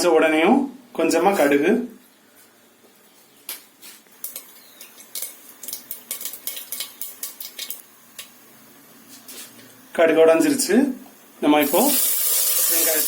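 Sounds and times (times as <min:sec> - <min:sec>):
seeds popping in hot oil: 0:03.5 - 0:08.4.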